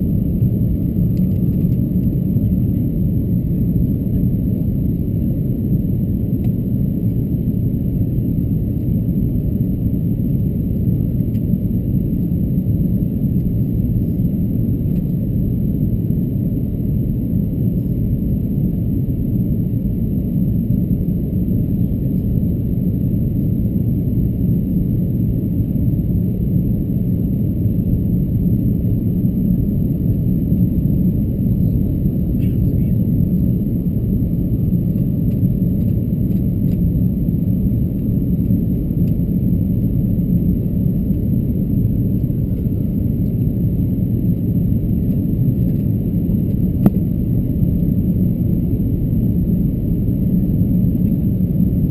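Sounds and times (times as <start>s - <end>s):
airplane cabin engine drone: 0.0s - 51.9s.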